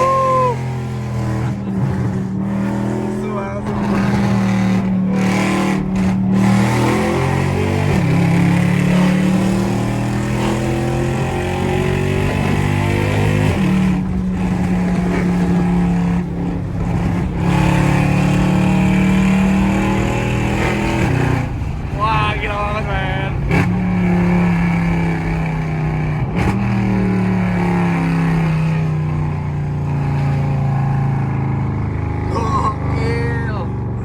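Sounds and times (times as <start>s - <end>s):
car engine droning: 0.0s - 34.0s.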